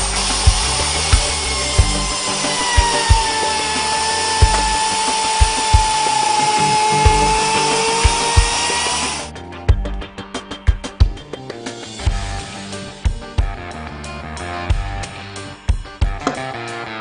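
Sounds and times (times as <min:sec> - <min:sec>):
router cutting wood: 0:00.0 - 0:09.3.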